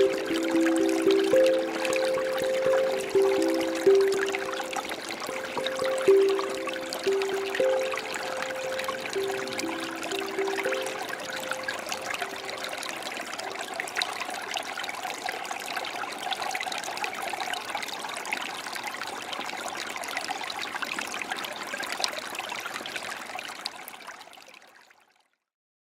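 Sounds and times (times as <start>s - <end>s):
handpan notes ringing: 0.0s - 12.8s
creek trickling over stones: 0.0s - 25.2s.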